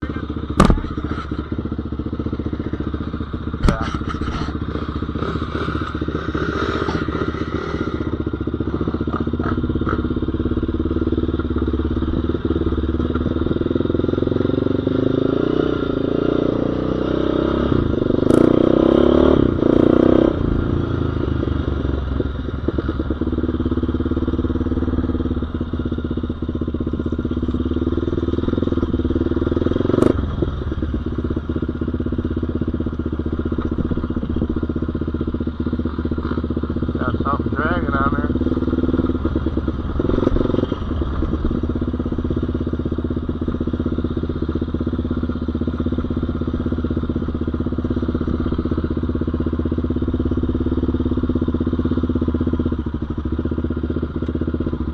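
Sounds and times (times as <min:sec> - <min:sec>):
off-road engine revving: 0:00.0 - 0:22.0, 0:27.0 - 0:32.4, 0:33.0 - 0:53.0.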